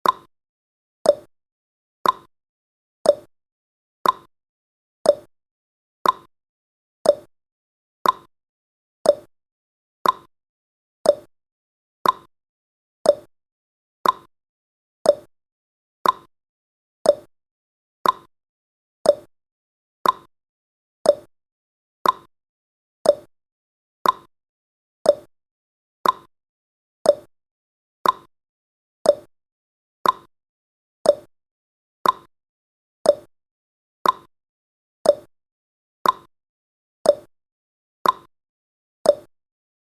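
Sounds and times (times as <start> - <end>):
clock ticking: 2.0 - 2.3, 4.0 - 4.3, 6.0 - 6.3, 8.0 - 8.3, 10.0 - 10.3, 12.0 - 12.3, 14.0 - 14.3, 16.0 - 16.3, 18.0 - 18.3, 20.0 - 20.3, 21.1 - 21.3, 22.0 - 22.3, 24.0 - 24.3, 26.0 - 26.3, 28.0 - 28.3, 29.1 - 29.3, 30.0 - 30.3, 31.1 - 31.3, 32.0 - 32.3, 33.1 - 33.3, 34.0 - 34.3, 35.1 - 35.3, 36.0 - 36.3, 38.0 - 38.3.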